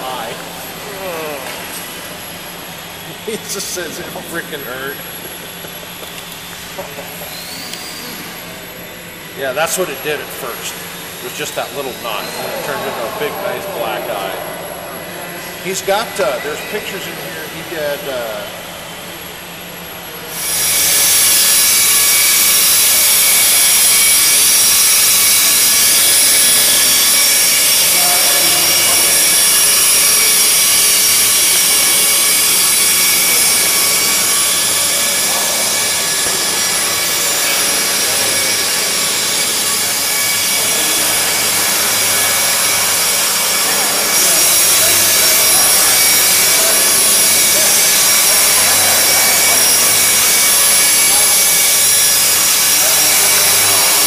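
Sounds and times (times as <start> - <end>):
small electric motor whining: 0.0 - 54.0.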